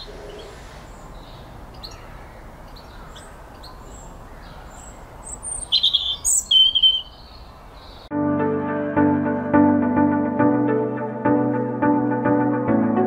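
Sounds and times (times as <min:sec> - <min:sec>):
small birds chirping and singing: 0:00.0 - 0:08.1
bird whistled phrases: 0:05.6 - 0:07.2
music: 0:08.1 - 0:13.0.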